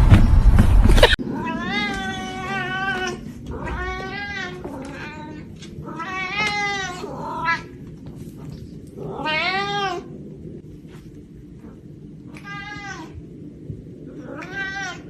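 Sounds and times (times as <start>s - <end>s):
cat meowing: 1.2s - 7.8s, 9.0s - 10.1s, 12.3s - 13.2s, 14.2s - 15.0s.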